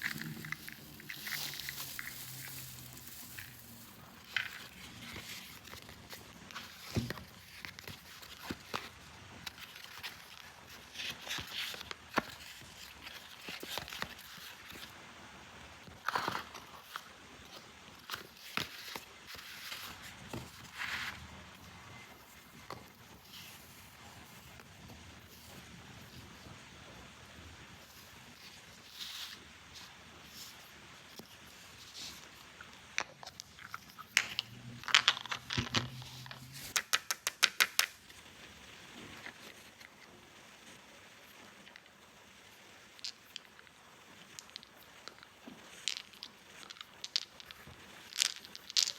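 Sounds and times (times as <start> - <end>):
packaging rustling: 0.0 - 14.8
crinkling: 0.0 - 15.0, 15.8 - 26.5, 27.8 - 42.0, 42.6 - 48.9
plastic toy pieces clicking: 36.8 - 37.9.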